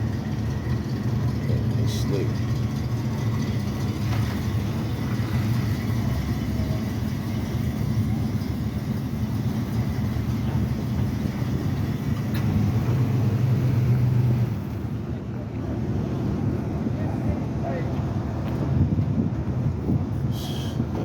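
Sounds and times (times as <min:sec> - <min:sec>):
car engine idling: 0:00.0 - 0:16.7.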